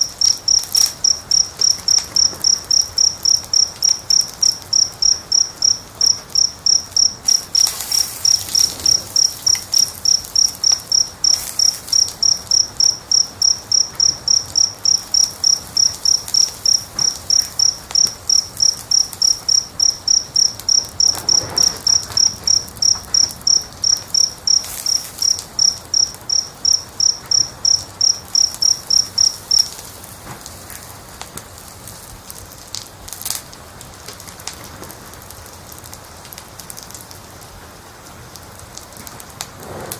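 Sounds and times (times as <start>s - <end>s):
cricket chirping: 0.0s - 30.5s
faint hiss with soft crackles: 0.0s - 39.9s.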